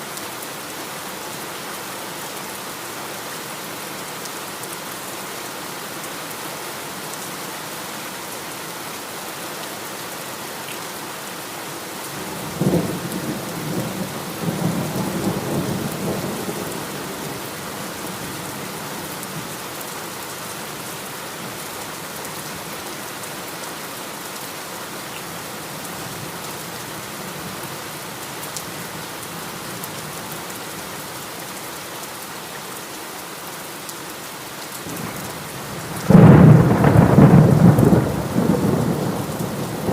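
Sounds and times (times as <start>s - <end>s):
heavy rain: 0.0s - 39.9s
thunder rumbling: 36.0s - 39.9s.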